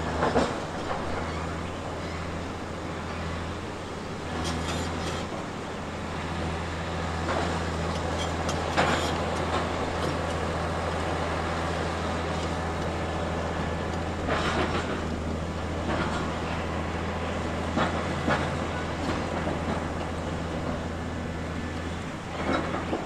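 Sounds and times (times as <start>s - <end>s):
diesel engine running: 0.0s - 23.0s
metallic clanks and scraping: 4.3s - 5.4s, 7.2s - 10.5s.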